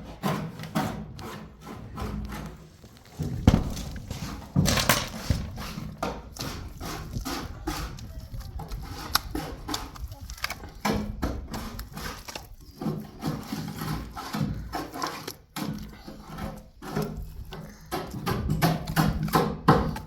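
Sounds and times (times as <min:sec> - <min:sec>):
knocks thuds and scuffs: 0:02.0 - 0:07.0.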